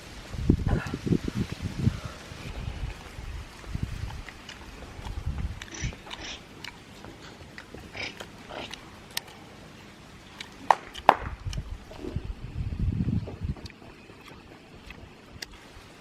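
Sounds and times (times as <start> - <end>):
chewing and mouth noises: 2.4 - 12.4, 13.2 - 15.8.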